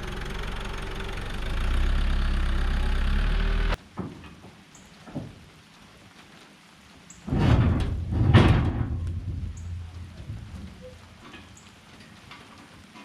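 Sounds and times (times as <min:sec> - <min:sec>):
light rain falling: 0:00.0 - 0:13.0
thunder rumble: 0:07.3 - 0:11.2.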